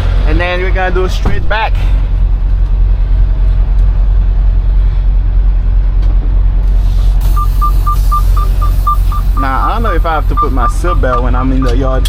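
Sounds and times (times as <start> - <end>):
diesel truck engine rumbling: 0.0 - 12.0
rapid reversing beeps: 7.2 - 11.8.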